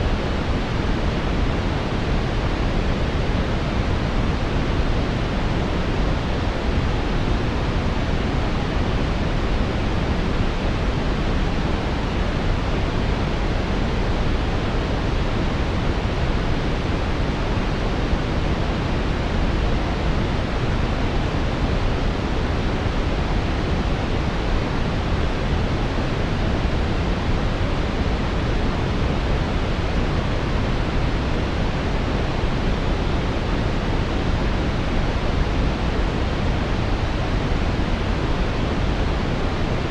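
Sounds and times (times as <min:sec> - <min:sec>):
brown noise: 0:00.0 - 0:39.9.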